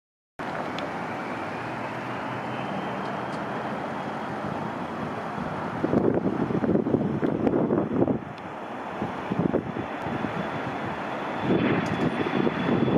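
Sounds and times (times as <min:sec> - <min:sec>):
jet engines rushing: 0:00.4 - 0:12.9
wind buffeting microphone: 0:00.4 - 0:12.9.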